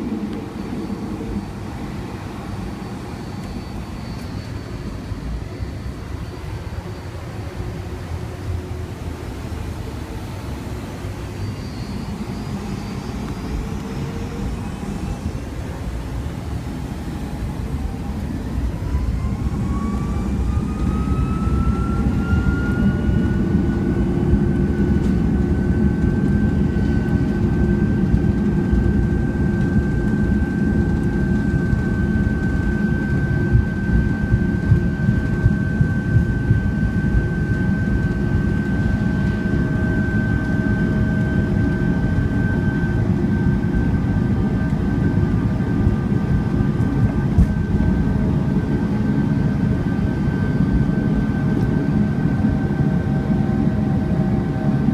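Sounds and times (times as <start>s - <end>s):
jet engine whine: 0.0s - 54.9s.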